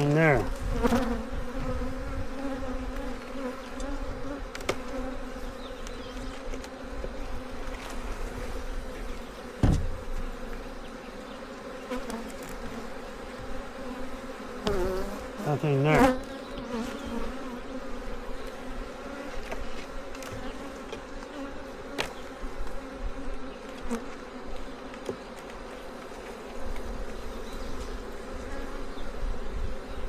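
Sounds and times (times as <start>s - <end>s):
bees buzzing: 0.0s - 30.0s
sharp knock: 9.6s - 10.1s.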